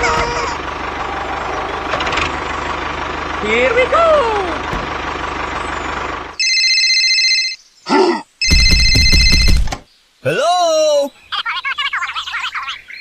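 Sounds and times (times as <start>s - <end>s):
small engine running: 0.0s - 6.4s
electronic ringing tone: 6.4s - 7.6s, 8.4s - 9.7s.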